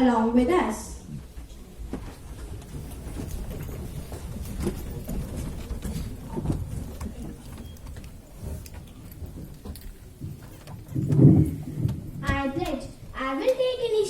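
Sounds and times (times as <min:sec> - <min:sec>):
people shuffling about: 0:01.0 - 0:13.9
scrapes knocks and clicks: 0:01.9 - 0:12.8.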